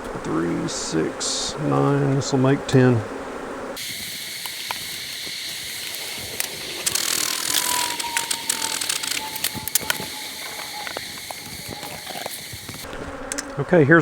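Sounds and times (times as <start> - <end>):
honey bees humming: 0.0 - 14.0
sharp clicks: 3.8 - 13.6.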